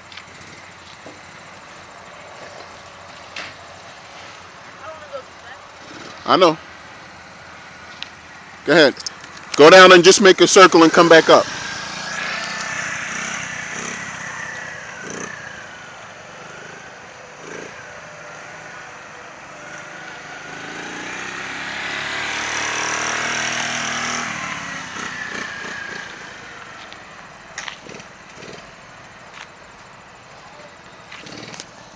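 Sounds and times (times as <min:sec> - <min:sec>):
dirt bike engine revving: 0:00.0 - 0:01.6, 0:04.8 - 0:08.0, 0:08.6 - 0:26.9, 0:27.6 - 0:28.9, 0:31.1 - 0:31.9.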